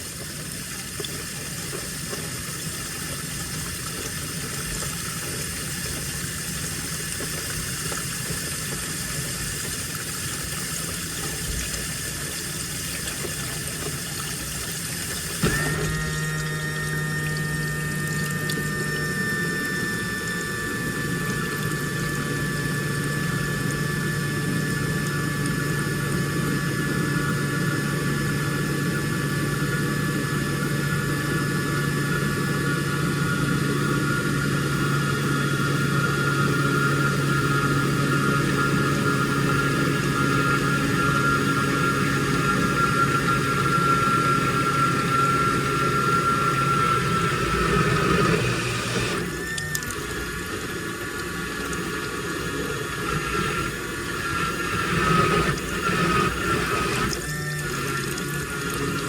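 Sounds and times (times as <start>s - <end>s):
washing machine low hum: 0.0s - 59.0s
water running into washing machine: 0.0s - 59.0s
high whine: 15.4s - 59.0s.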